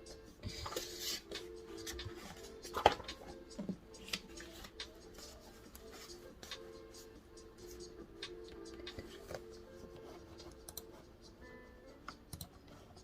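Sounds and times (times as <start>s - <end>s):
small handling noises: 0.4s - 11.0s.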